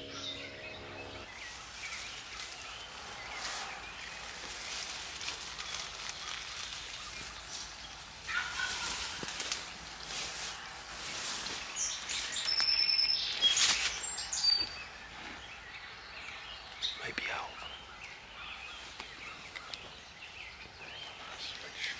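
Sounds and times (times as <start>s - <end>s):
quiet outdoor ambience: 0.0s - 21.9s
turkey gobbling: 8.3s - 9.2s.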